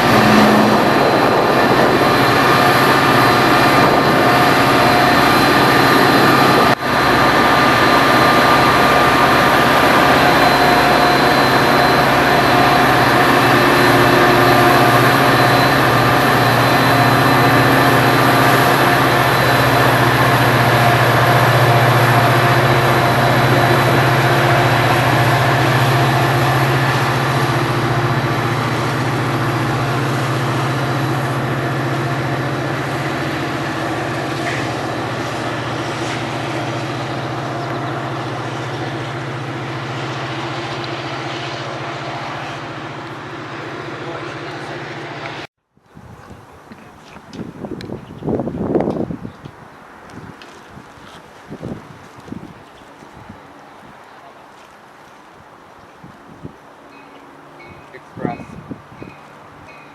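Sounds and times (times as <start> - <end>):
train rumbling over rails: 0.0 - 59.9.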